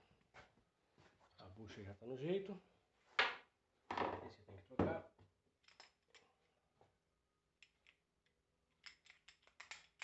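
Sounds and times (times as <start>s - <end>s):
small metal parts clicking: 8.7s - 10.0s.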